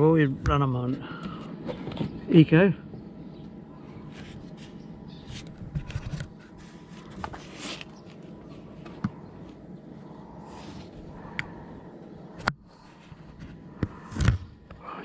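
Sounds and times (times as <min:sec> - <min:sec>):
faint steady hum: 0:00.0 - 0:15.0
handling scrapes and rustles: 0:04.1 - 0:09.6.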